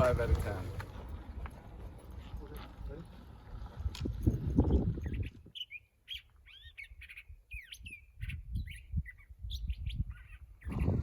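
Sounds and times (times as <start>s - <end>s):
songbird singing: 4.2s - 11.0s.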